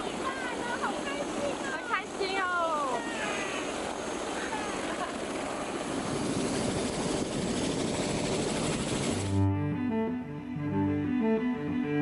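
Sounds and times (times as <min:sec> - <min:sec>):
helicopter engine and rotor: 0:00.0 - 0:09.4
music with low bowed strings: 0:09.3 - 0:12.0.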